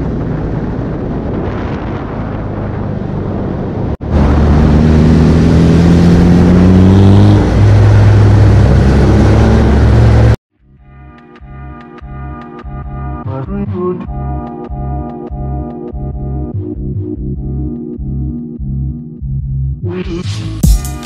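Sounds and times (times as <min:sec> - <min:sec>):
car engine accelerating: 0:03.0 - 0:10.4.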